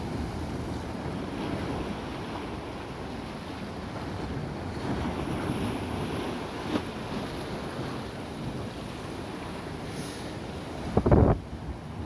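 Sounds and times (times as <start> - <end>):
sea waves washing ashore: 0.0 - 12.0
wind rumbling on microphone: 10.7 - 12.0.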